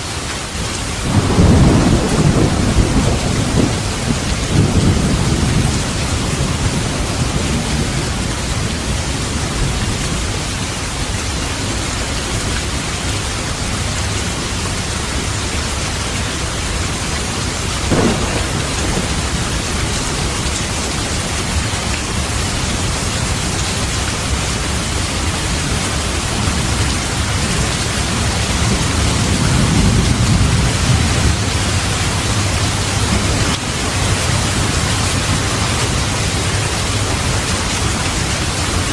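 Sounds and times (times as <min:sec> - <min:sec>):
heavy rain falling: 0:00.0 - 0:38.9
thunder rumbling: 0:01.0 - 0:10.3, 0:17.2 - 0:38.9
sharp thunder crack: 0:17.9 - 0:21.6.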